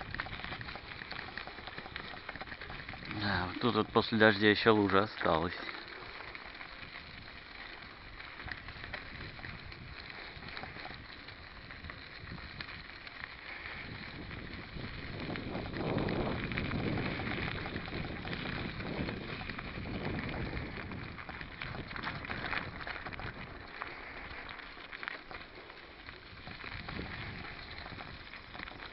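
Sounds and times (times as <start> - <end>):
bike tyres crackling over dirt: 0.0 - 28.9
small rattles: 0.0 - 28.9
wind on microphone: 8.0 - 13.0, 13.6 - 24.3, 26.3 - 28.6.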